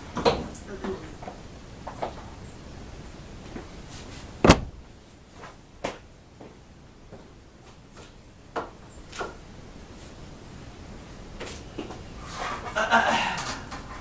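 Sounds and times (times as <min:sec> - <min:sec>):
knocks and clunks of things handled: 0:04.4 - 0:04.9.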